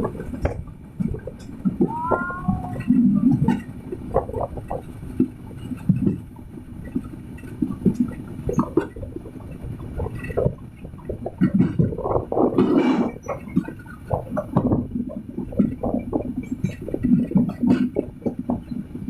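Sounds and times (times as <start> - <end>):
train carriage low rumble: 0.0 - 19.0.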